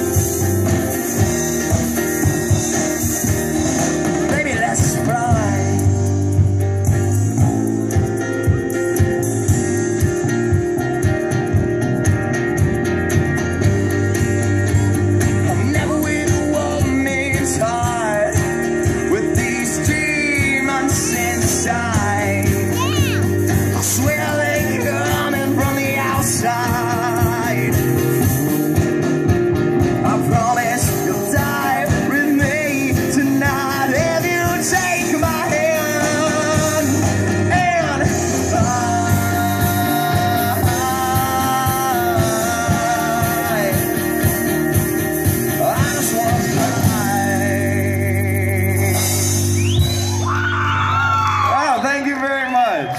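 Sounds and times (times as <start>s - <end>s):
live rock band playing: 0.0s - 52.9s
person singing: 15.5s - 28.2s, 29.9s - 49.4s.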